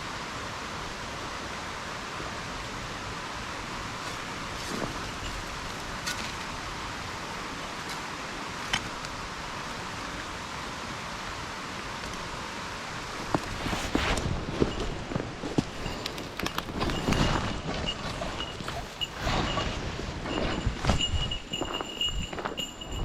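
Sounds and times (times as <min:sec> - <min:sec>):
mountain stream rushing: 0:00.0 - 0:23.0
rustling through undergrowth: 0:03.7 - 0:10.3, 0:12.2 - 0:23.0
footsteps: 0:13.2 - 0:23.0.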